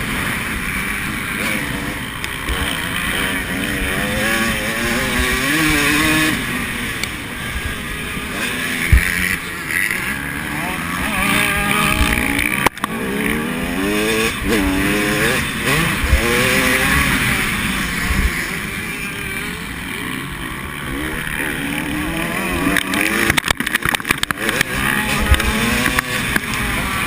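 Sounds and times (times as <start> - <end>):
motocross engines revving: 0.0 - 27.0
sharp crackles: 22.6 - 26.7.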